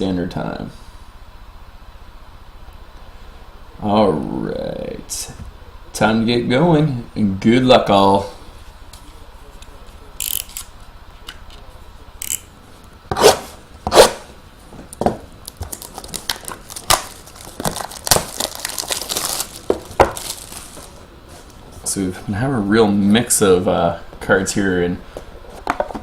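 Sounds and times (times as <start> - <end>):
sharp handling noises: 8.8 - 21.6
plastic wrapper crinkling and tearing: 15.4 - 21.1.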